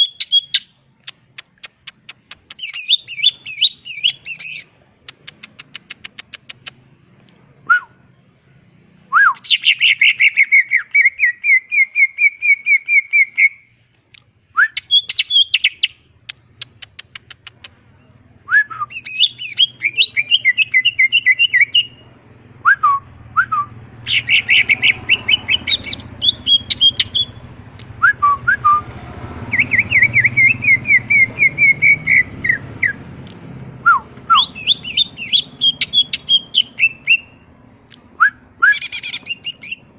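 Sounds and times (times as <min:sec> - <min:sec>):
bird chirping and trilling: 0:00.0 - 0:00.8, 0:01.8 - 0:06.8, 0:09.3 - 0:13.7, 0:14.7 - 0:22.1, 0:23.7 - 0:27.5, 0:29.5 - 0:33.1, 0:34.3 - 0:37.4, 0:38.7 - 0:39.9.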